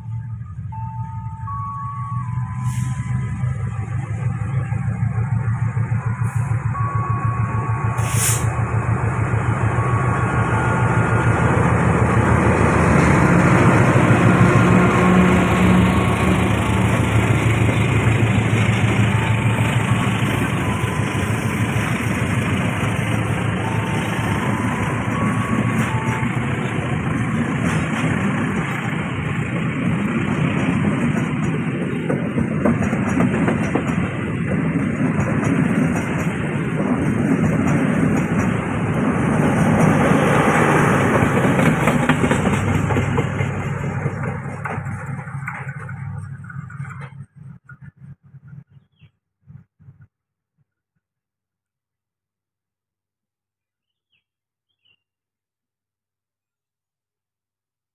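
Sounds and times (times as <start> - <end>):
train wheels on rails: 2.3 - 49.6.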